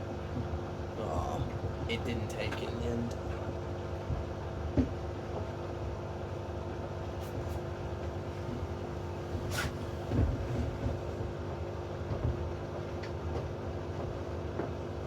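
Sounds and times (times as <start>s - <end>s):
washing machine motor humming: 7.4s - 11.4s
brief swish: 9.5s - 9.8s.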